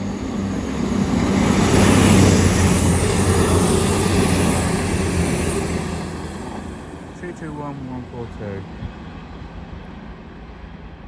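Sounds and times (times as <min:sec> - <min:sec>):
diesel train engine: 0:00.0 - 0:11.0
train wheels rushing: 0:00.0 - 0:11.0.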